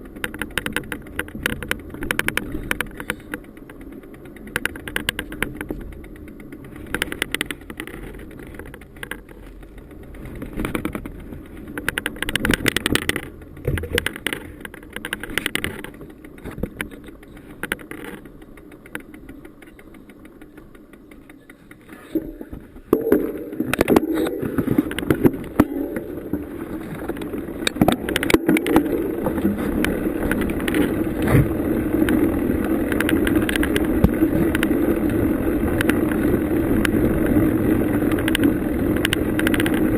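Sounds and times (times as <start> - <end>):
bicycle rattling over bumps: 0.0 - 39.9
tyres rolling and wind rush: 0.0 - 39.9.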